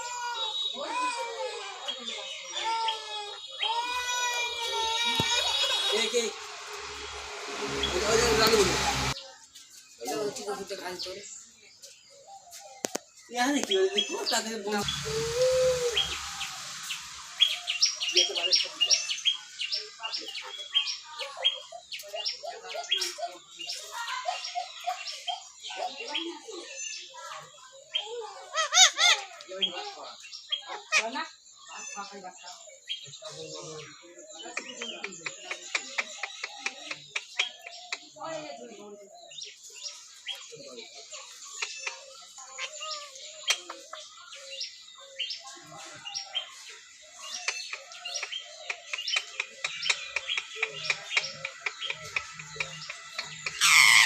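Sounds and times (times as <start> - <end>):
parrot chirping: 5.4 - 9.2, 14.3 - 19.6, 49.2 - 54.0
parrot chirping and chattering: 47.2 - 54.0.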